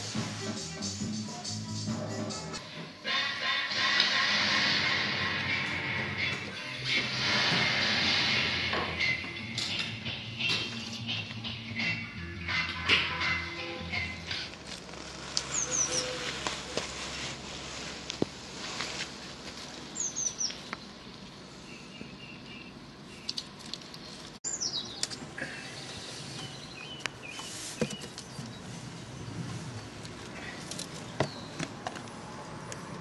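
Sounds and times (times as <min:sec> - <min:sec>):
outdoor background noise: 0:00.0 - 0:33.0
birds chirping: 0:15.4 - 0:16.3, 0:19.9 - 0:31.8.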